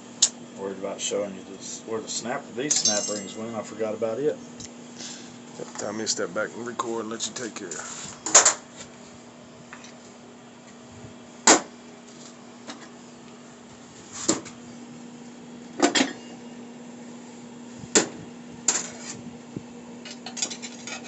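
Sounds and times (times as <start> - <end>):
steady low hum: 0.0 - 21.0
metal parts knocking together: 2.7 - 3.4.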